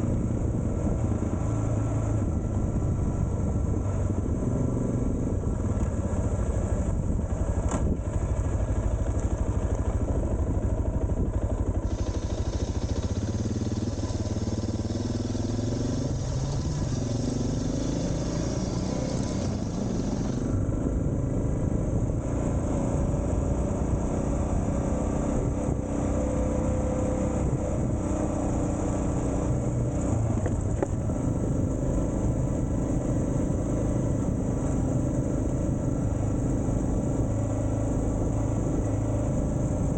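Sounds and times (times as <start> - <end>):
motorcycle engine running: 0.0 - 39.9
hiss: 11.8 - 20.5.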